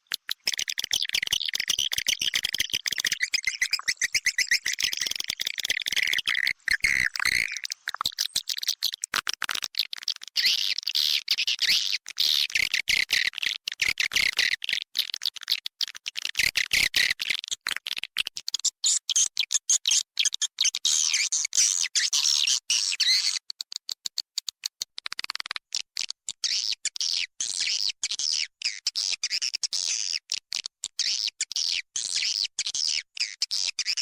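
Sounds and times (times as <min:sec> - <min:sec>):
high twittering bird chirps: 0:00.0 - 0:08.9.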